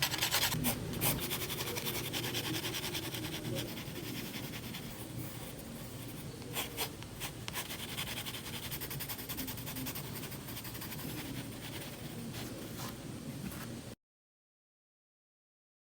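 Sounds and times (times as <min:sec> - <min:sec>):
drawing tool scratching paper: 0:00.0 - 0:12.6.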